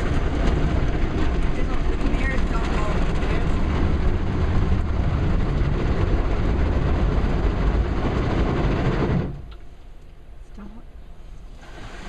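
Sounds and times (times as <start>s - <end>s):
car wash rushing and rumbling: 0.0s - 12.0s.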